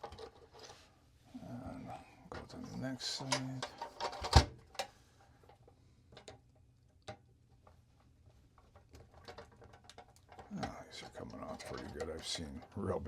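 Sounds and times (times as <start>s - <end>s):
hand tools clicking and tapping: 9.0s - 12.9s.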